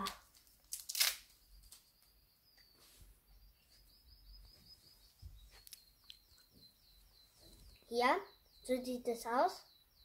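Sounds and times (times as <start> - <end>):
small bird chirping faintly: 0.0 - 10.0.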